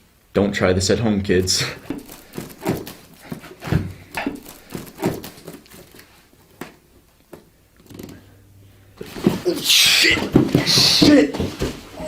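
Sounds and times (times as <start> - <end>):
cardboard knocks and scrapes: 1.8 - 6.0, 10.2 - 11.9.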